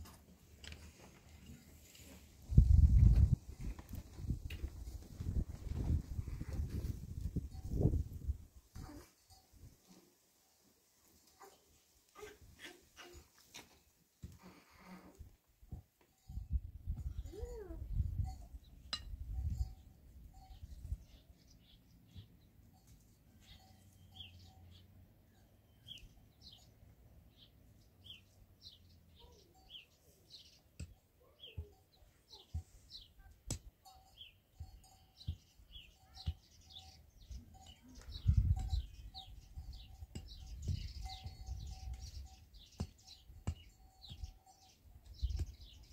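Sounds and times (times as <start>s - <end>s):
small birds chirping: 16.2s - 45.9s.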